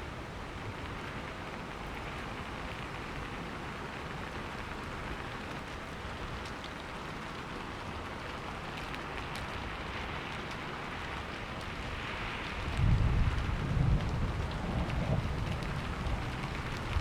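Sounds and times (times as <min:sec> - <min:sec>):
heavy rain falling: 0:00.0 - 0:17.0
raindrops ticking: 0:00.6 - 0:17.0.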